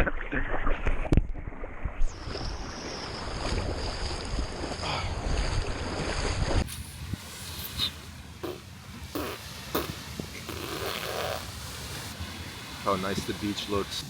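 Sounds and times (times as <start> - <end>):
wind noise on microphone: 0.6 - 12.2
ocean surf rushing: 11.4 - 14.0.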